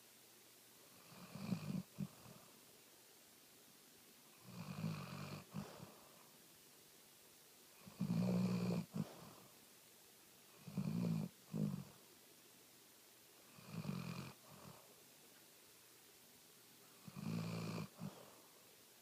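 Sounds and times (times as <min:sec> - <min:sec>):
dog snoring: 0:00.9 - 0:02.5, 0:04.3 - 0:06.0, 0:07.8 - 0:09.4, 0:10.5 - 0:12.0, 0:13.5 - 0:14.9, 0:17.0 - 0:18.3.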